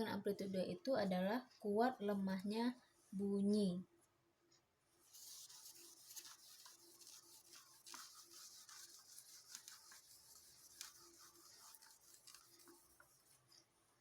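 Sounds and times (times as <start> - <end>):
scratchy handwriting strokes: 5.0 - 13.8.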